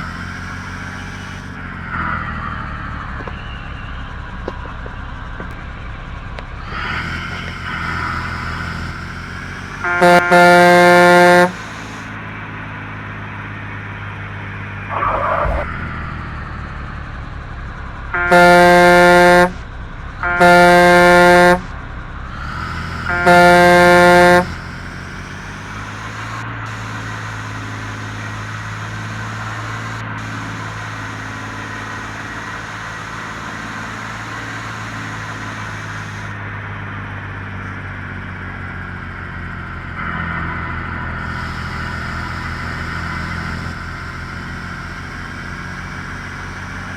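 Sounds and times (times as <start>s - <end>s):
engine and road noise: 0.0s - 46.9s
truck horn blasts: 6.6s - 12.2s, 14.9s - 16.4s, 18.0s - 36.4s, 41.2s - 45.1s.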